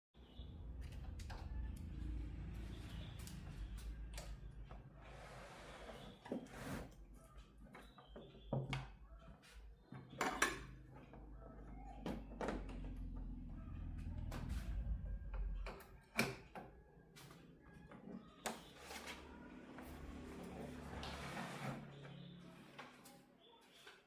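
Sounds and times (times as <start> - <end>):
low steady hum: 12.7 - 16.0.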